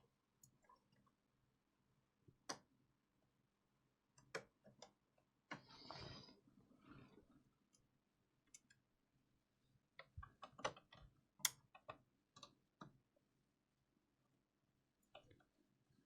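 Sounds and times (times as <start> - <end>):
small clicks and taps of repair work: 2.3 - 2.7, 4.2 - 5.7, 7.7 - 8.8, 10.0 - 13.1.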